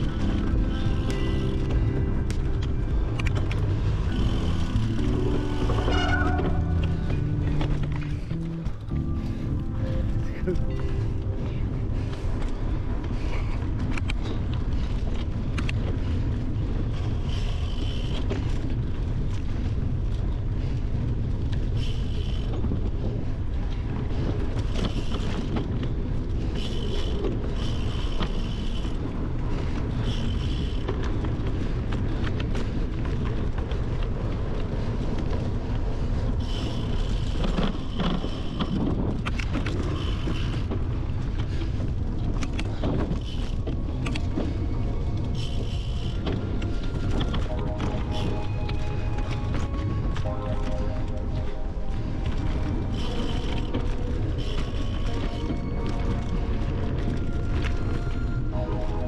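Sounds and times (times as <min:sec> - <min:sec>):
bike rattling clicks: 0:00.0 - 0:05.0
bicycle tyres rolling on gravel: 0:00.0 - 0:59.0
brief high-pitched sound: 0:47.4 - 0:53.5.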